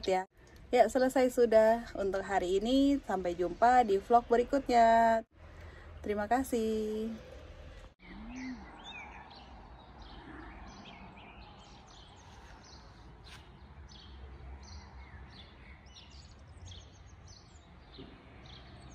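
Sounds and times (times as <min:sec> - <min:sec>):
small songbirds chirping: 0:05.0 - 0:18.9.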